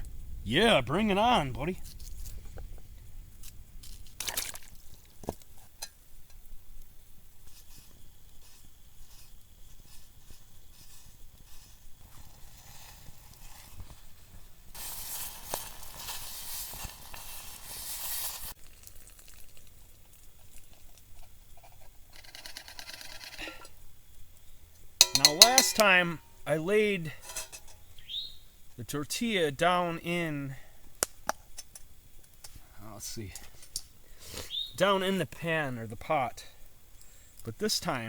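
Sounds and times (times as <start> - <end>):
food sizzling over campfire: 0.0 - 38.0
loud hiss: 14.7 - 18.6
clicks and small knocks: 25.0 - 25.9.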